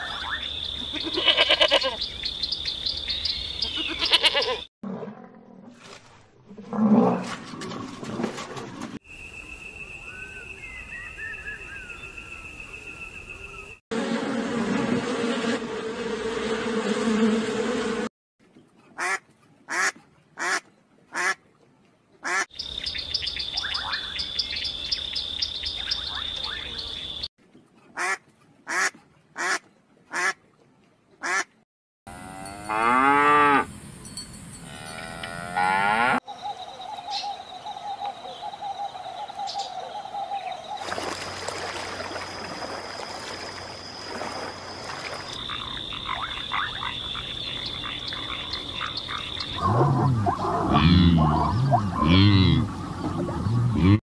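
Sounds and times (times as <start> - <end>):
ducks quacking: 22.2 - 22.5, 45.4 - 54.0
buffalo lowing call: 49.6 - 54.0.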